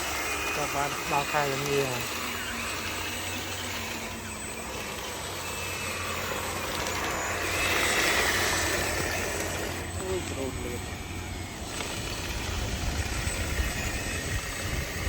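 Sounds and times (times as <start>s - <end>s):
small electric motors whirring: 0.0s - 15.0s.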